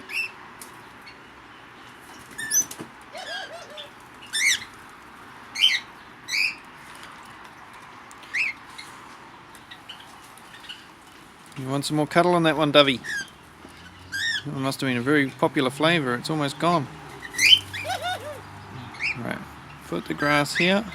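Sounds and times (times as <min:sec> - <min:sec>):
birds chirping: 0:00.0 - 0:20.9
lower bird call: 0:17.2 - 0:19.2.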